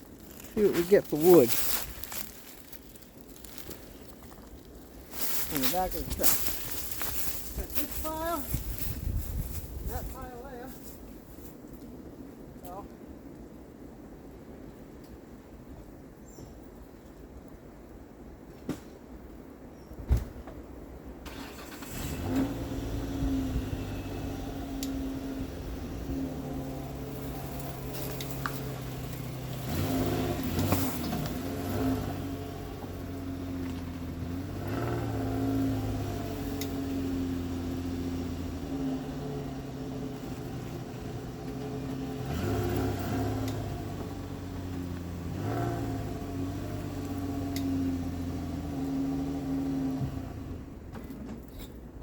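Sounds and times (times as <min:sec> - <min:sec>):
truck engine running: 0:21.6 - 0:50.8.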